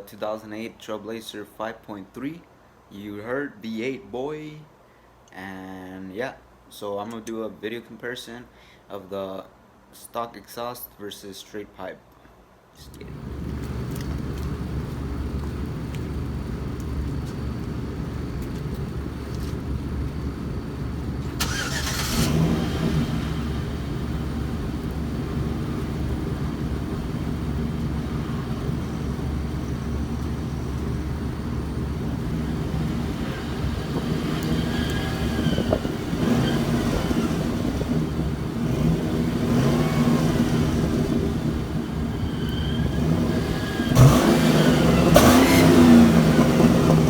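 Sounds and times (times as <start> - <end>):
engine exhaust rumble: 12.9 - 47.0
engine revving: 13.0 - 47.0.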